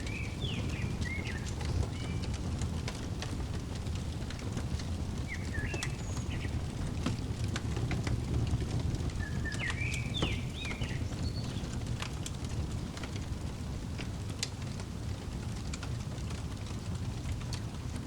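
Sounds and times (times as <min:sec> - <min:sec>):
bird chirps: 0:00.0 - 0:02.3, 0:05.3 - 0:06.6, 0:09.2 - 0:11.8
fireplace fire crackling: 0:00.0 - 0:18.0.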